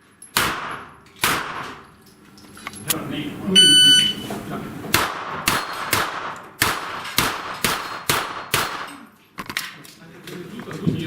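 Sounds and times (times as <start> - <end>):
gunshots: 0.4 - 1.8, 4.9 - 9.0.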